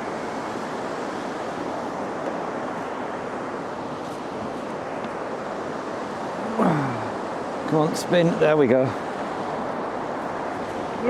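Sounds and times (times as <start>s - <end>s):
steady rushing outdoor noise: 0.0s - 11.0s.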